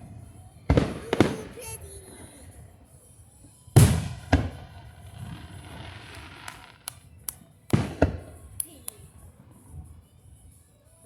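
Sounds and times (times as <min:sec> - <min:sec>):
fireworks booming: 0:00.0 - 0:02.9, 0:03.8 - 0:06.9, 0:07.7 - 0:08.6
fireworks crackling: 0:00.0 - 0:10.6
sharp small pops: 0:06.1 - 0:09.1.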